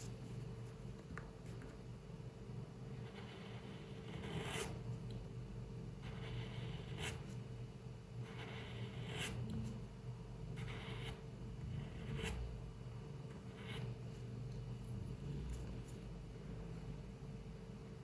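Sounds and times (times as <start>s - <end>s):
low steady hum: 0.0s - 18.0s
pencil scratching on paper: 2.9s - 4.8s, 6.0s - 7.4s, 8.2s - 9.8s, 10.6s - 12.5s, 13.3s - 14.0s.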